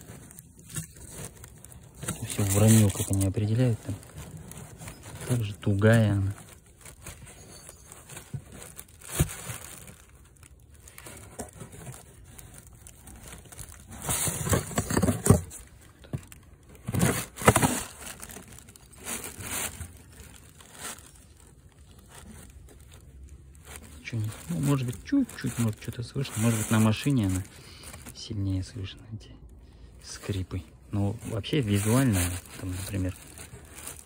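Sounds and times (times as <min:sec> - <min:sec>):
faint squeak: 0:07.0 - 0:08.7.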